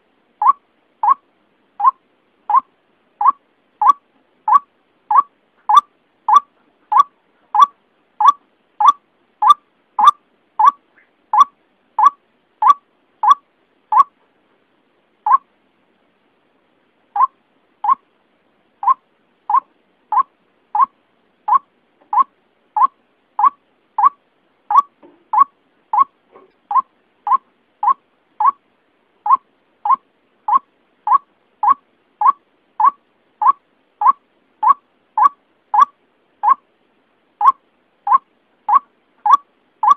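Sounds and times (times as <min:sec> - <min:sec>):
waterhen calling short notes: 0:37.4 - 0:39.9.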